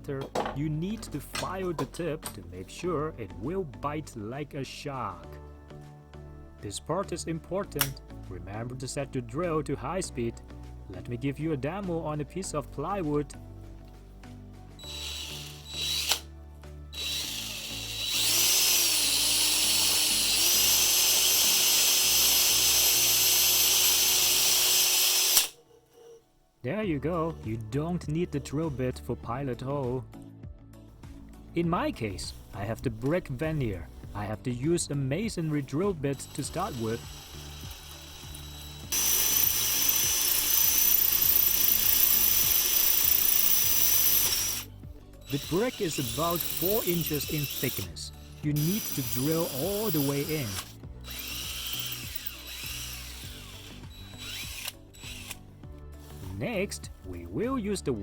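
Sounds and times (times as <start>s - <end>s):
background music: 0.0s - 58.0s
power drill high whine: 14.8s - 16.3s, 16.9s - 25.6s, 36.2s - 44.7s, 45.3s - 55.4s.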